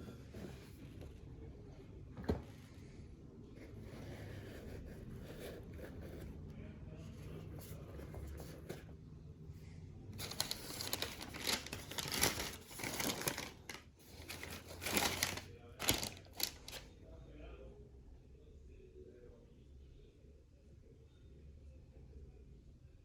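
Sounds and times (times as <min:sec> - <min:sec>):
packaging crinkling and rustling: 0:10.2 - 0:16.9.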